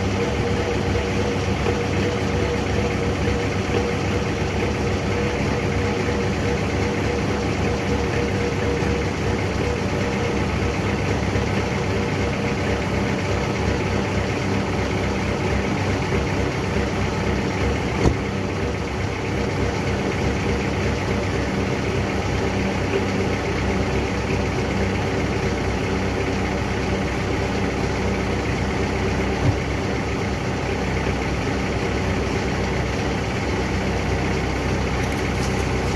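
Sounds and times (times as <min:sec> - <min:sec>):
diesel engine idling: 0:00.0 - 0:35.9.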